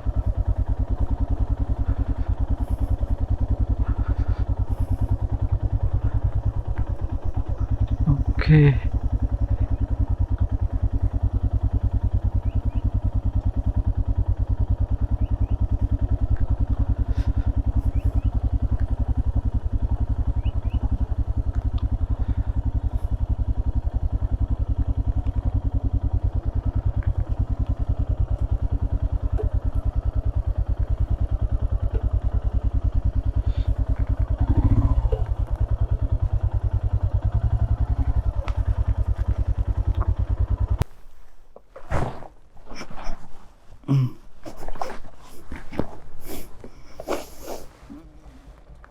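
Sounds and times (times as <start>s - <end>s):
motorcycle engine thumping: 22.8s - 40.9s.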